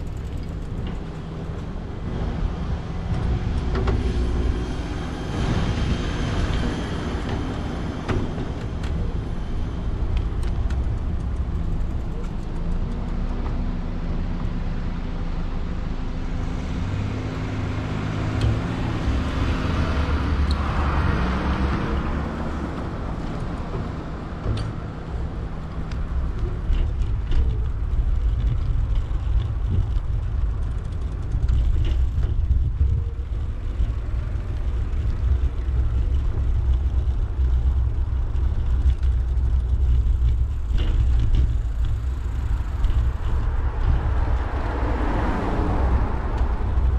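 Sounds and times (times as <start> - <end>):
steady low rumble: 0.0 - 46.9
motor vehicle passing: 15.6 - 46.9.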